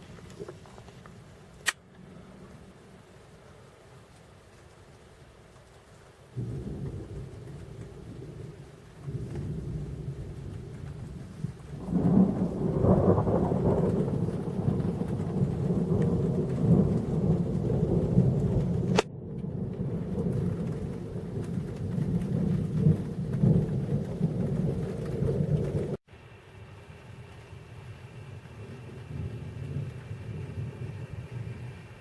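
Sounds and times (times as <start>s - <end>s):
rain: 0.0s - 32.0s
thunder rumbling: 6.3s - 26.0s, 27.2s - 32.0s.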